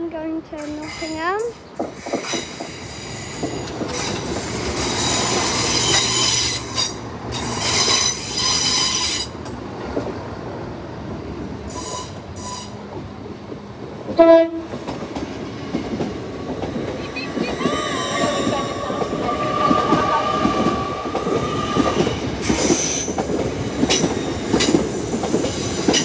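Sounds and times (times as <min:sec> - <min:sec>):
train engine humming: 0:00.0 - 0:26.0
train wheel squeal: 0:01.9 - 0:09.3, 0:11.7 - 0:12.8, 0:17.4 - 0:26.0
train horn toot: 0:14.2 - 0:14.7.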